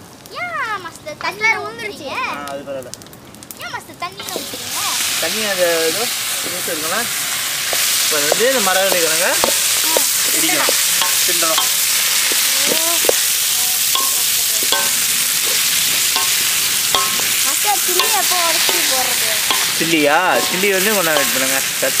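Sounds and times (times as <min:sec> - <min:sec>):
food sizzling in hot oil: 0:00.0 - 0:22.0
spatula stirring in a wok: 0:06.1 - 0:22.0.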